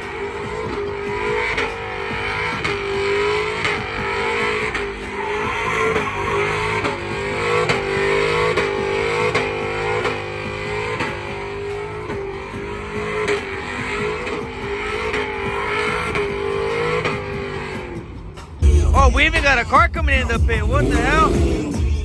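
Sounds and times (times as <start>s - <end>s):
engine revving high: 0.0s - 22.0s
tires squealing: 0.0s - 22.0s.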